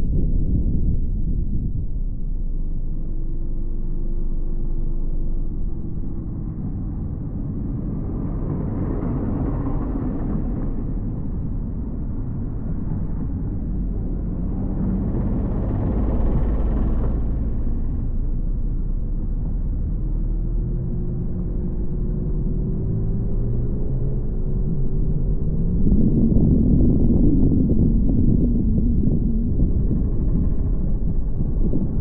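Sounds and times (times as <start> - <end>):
car engine and tyre rumble: 0.0 - 32.0.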